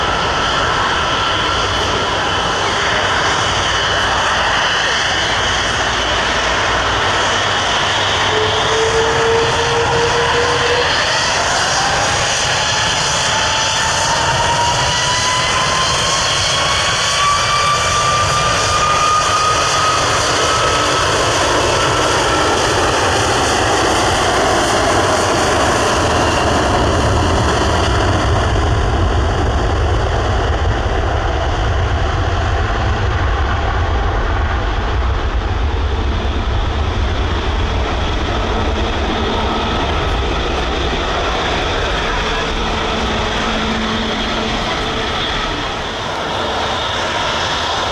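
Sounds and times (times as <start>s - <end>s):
jet engines spooling up: 0.0s - 47.9s
deep rumble: 28.2s - 47.9s.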